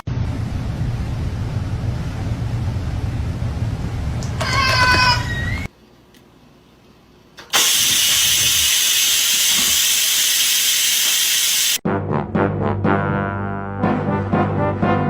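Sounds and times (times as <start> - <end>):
loud steady hiss: 7.5 - 11.8
brass music: 11.8 - 15.0.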